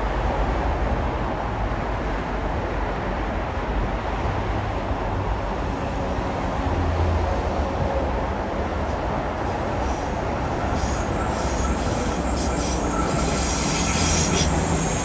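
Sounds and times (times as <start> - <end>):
train wheel and rail noise: 0.0 - 15.0
high wheel squeal: 8.9 - 15.0.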